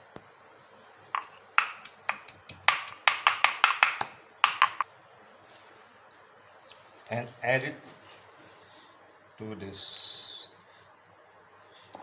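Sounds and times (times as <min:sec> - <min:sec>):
berries being pounded: 0:01.2 - 0:04.9.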